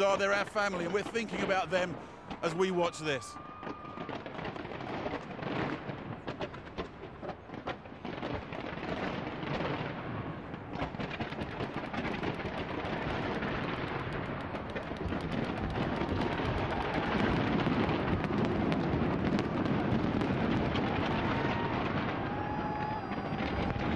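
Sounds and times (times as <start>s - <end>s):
fireworks crackle: 0.0s - 23.9s
fireworks shells bursting: 10.8s - 21.4s.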